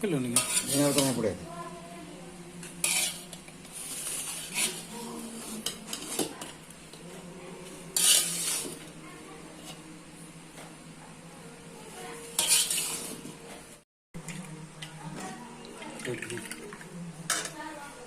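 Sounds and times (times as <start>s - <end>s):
metal spoon scraping a pot: 0.3s - 1.2s, 2.6s - 6.6s, 7.7s - 8.9s, 12.3s - 13.3s.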